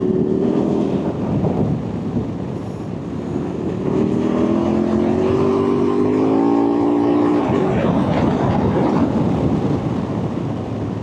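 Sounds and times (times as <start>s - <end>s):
motorcycle engine accelerating: 3.5s - 9.2s.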